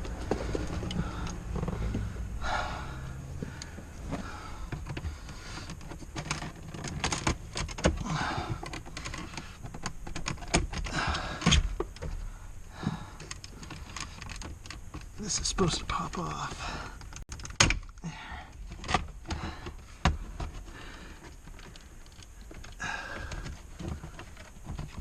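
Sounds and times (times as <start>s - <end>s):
plastic scraping rubs: 3.4s - 12.2s, 18.6s - 25.0s.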